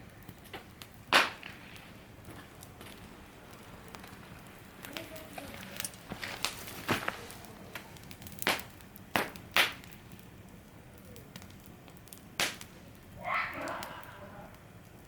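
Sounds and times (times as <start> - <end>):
campfire crackling: 0.0 - 15.0
sharp pops: 0.4 - 3.0, 6.3 - 10.0, 12.4 - 12.7.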